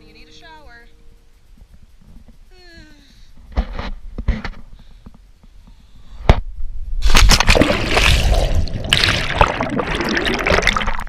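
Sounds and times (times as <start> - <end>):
water splashing and rushing: 7.0 - 11.0.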